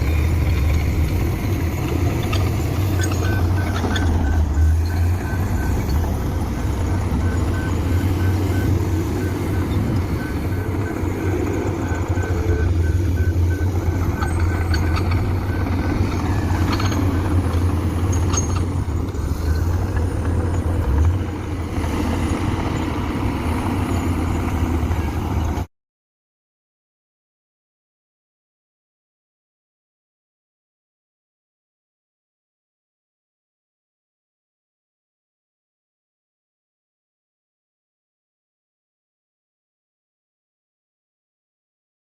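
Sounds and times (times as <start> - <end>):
warning alarm beeping: 0.0 - 25.5
diesel engine droning: 0.0 - 25.7.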